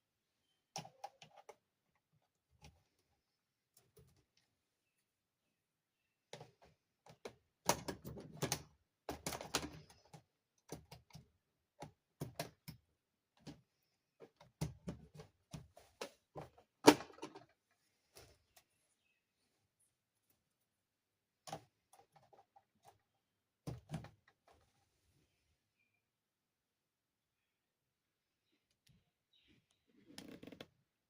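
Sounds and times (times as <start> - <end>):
toy parts clicking and knocking: 6.3 - 13.6.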